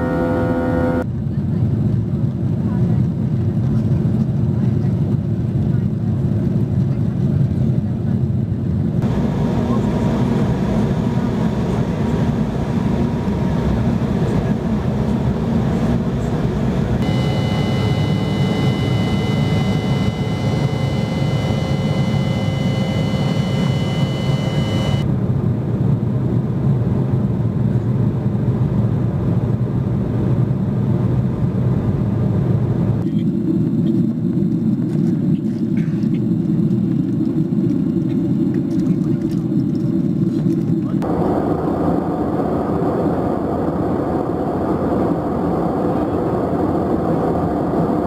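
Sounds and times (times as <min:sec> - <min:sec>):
high engine whine: 0:00.0 - 0:01.1, 0:09.0 - 0:27.1, 0:30.2 - 0:48.0
jet engines and airflow rushing: 0:00.0 - 0:48.0.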